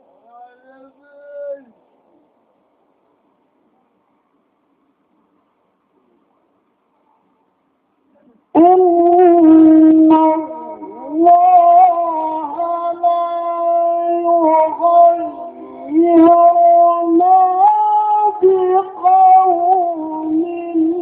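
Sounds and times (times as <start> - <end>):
man chanting melismatic recitation: 8.5 - 21.0.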